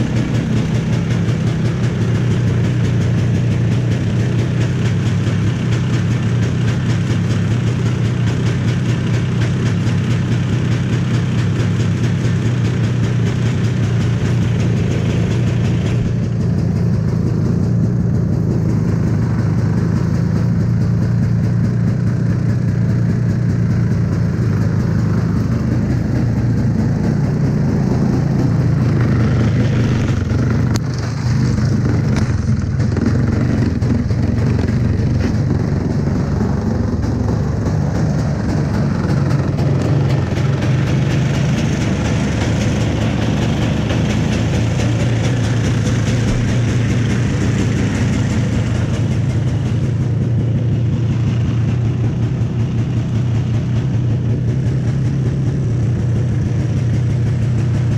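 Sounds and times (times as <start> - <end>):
two-stroke snowmobile engine running: 0.0 - 57.9.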